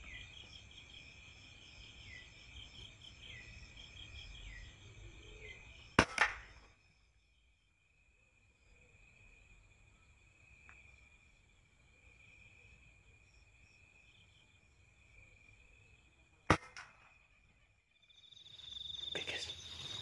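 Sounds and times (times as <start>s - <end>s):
insects chirring: 0.0s - 20.0s
air rifle shot: 6.0s - 6.5s, 16.5s - 17.1s
faint crack: 6.0s - 6.7s, 16.5s - 17.2s.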